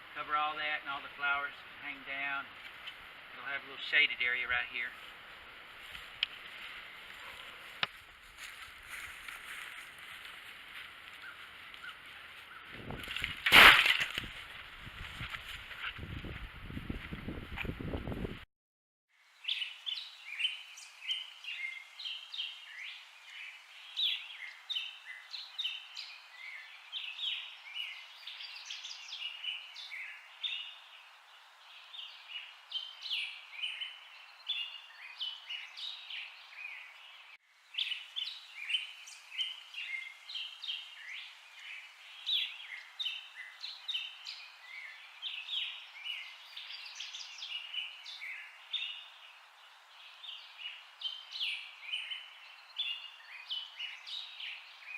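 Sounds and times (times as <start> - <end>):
birds chirping: 0.0 - 5.0, 19.4 - 54.9.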